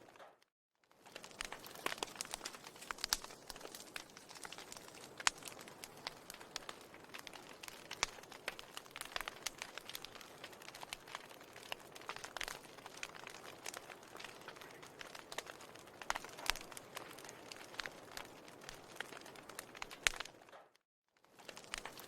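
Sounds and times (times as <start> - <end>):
wood fire crackling: 0.8 - 22.0.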